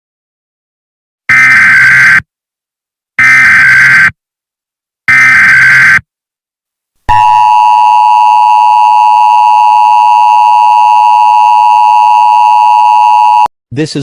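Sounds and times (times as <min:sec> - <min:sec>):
screeching digital header bursts: 0:01.3 - 0:02.2, 0:03.2 - 0:04.1, 0:05.1 - 0:06.0
steady loud attention tone: 0:01.3 - 0:02.2, 0:03.2 - 0:04.1, 0:05.1 - 0:06.0, 0:07.1 - 0:13.5.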